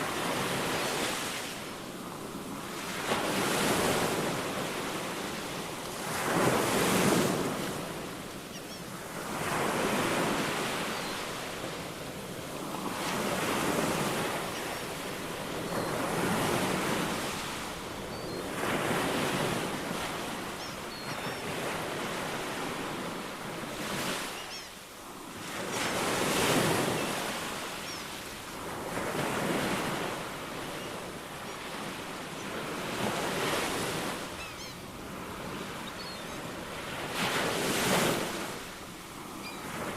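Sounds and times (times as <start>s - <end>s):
ocean waves breaking on shore: 0.0s - 39.9s
faint high bird chirps: 8.5s - 8.9s, 10.8s - 11.4s, 17.4s - 18.5s, 20.6s - 21.6s, 24.3s - 24.8s, 26.6s - 28.2s, 34.4s - 34.9s, 35.8s - 36.5s, 39.4s - 39.7s.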